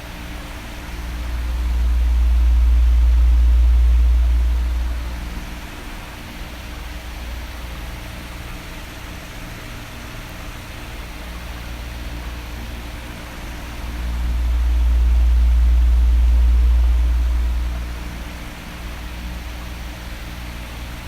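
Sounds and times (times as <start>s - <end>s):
deep rumble: 0.0s - 8.2s, 12.8s - 20.1s
electric fan whooshing: 0.0s - 8.4s, 12.8s - 19.5s.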